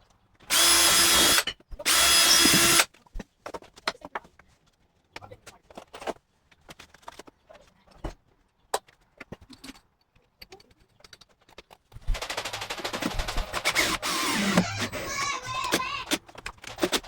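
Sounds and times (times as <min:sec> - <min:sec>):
fast rattle of clicks: 0:12.0 - 0:14.2.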